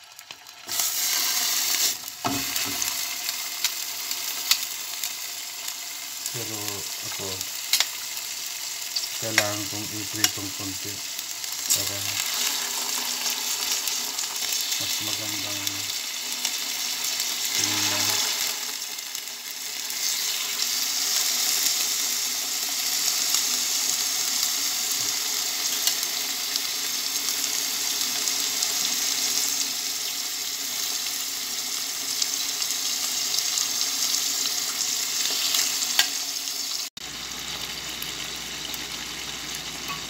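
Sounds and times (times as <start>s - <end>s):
chicken frying in oil: 0.0s - 40.0s.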